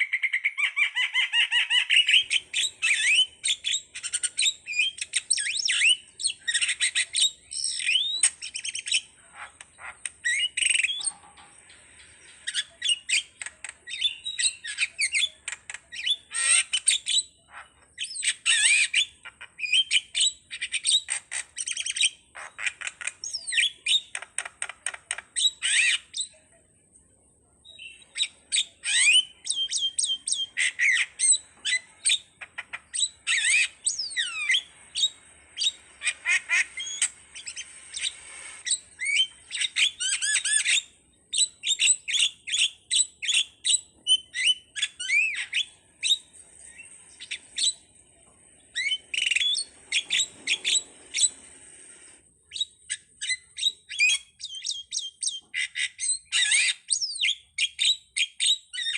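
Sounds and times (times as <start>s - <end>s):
starling singing: 0.0s - 26.4s, 27.7s - 47.9s.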